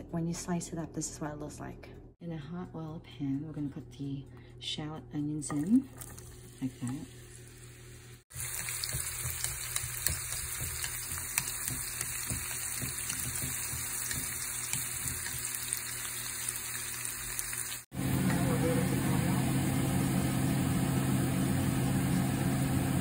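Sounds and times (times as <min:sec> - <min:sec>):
shallots sizzling in oil: 0:05.9 - 0:18.4.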